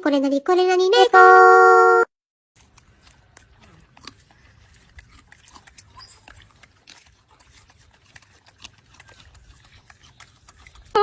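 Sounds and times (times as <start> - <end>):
animal clicks and small noises: 2.6 - 11.0.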